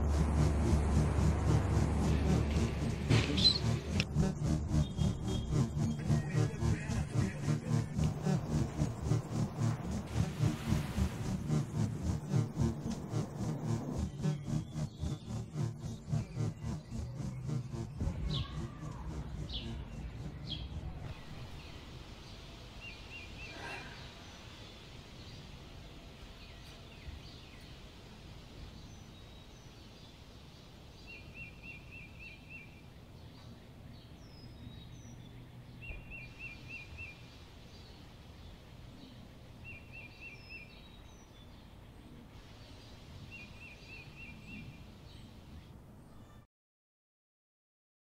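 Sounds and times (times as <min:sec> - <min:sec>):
birds singing: 0:01.3 - 0:09.2, 0:10.3 - 0:46.4
bird trilling: 0:03.3 - 0:03.8.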